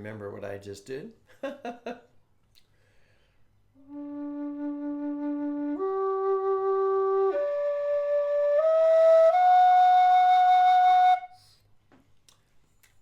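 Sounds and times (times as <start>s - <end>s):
low whistle long held notes: 3.8s - 11.5s.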